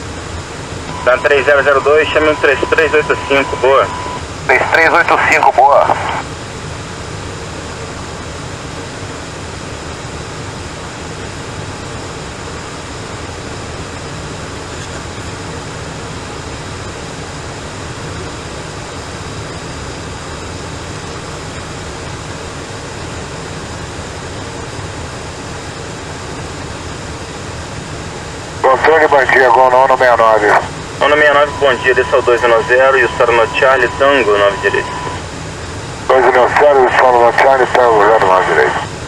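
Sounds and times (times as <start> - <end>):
radio static hiss: 0.8 - 6.4, 14.6 - 39.0.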